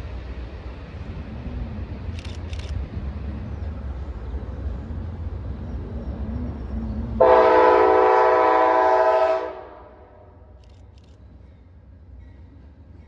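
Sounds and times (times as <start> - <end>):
train rumbling: 0.0 - 13.0
train horn chord: 7.2 - 10.4.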